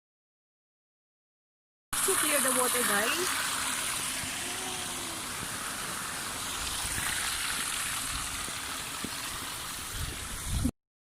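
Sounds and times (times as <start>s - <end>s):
water rushing over rocks: 2.0s - 10.7s.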